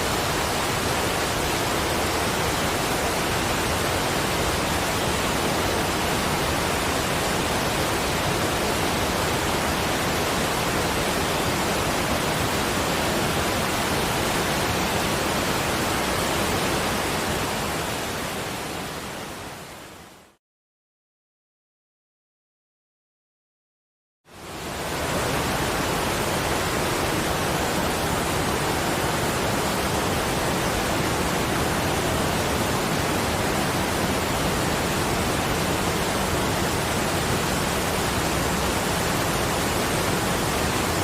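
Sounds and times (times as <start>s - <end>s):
rushing water: 0.0s - 20.4s, 24.3s - 41.0s.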